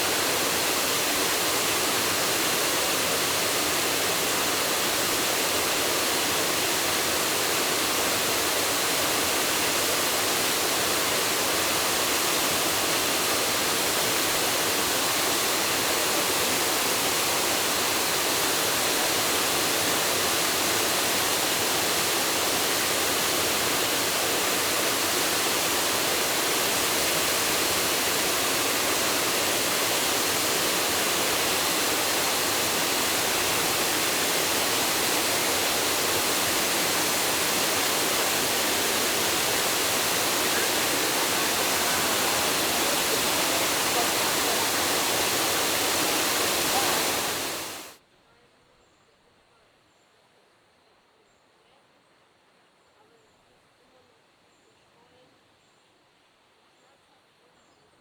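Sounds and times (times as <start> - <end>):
waterfall hissing: 0.0 - 48.0.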